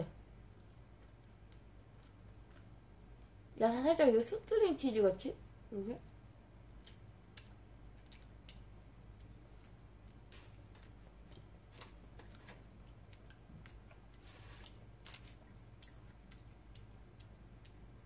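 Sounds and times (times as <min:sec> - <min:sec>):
steady low hum: 0:00.0 - 0:18.0
chewing clicks and ticks: 0:01.0 - 0:03.4, 0:06.8 - 0:09.3, 0:15.1 - 0:17.8.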